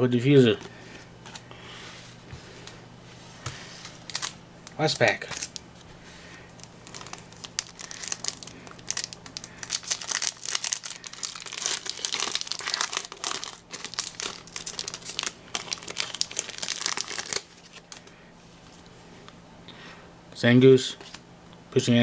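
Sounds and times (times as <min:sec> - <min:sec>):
foil wrapper crinkling: 0:03.8 - 0:05.9, 0:06.5 - 0:18.2.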